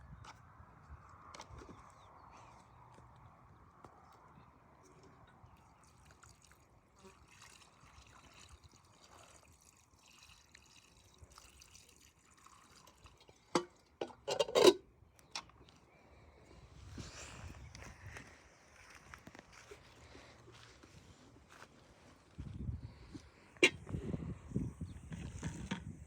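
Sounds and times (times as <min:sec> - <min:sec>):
faint water drips: 0:04.8 - 0:14.0
water splashing and dribbling: 0:05.3 - 0:14.1.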